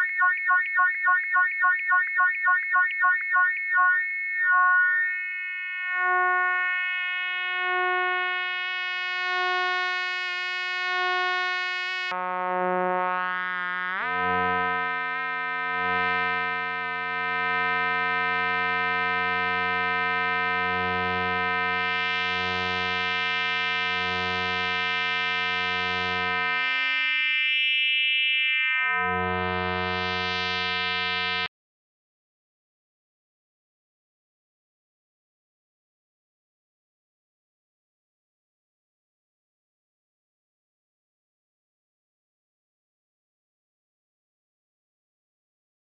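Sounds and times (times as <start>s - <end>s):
pulsing synthesizer tone: 0.0s - 8.0s.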